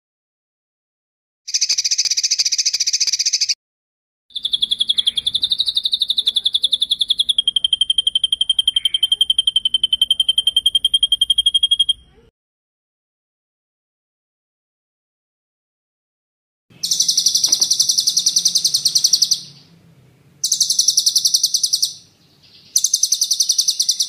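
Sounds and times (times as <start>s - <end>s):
songbird rapid rolling trill: 1.5s - 3.6s, 4.3s - 12.1s, 16.7s - 24.0s.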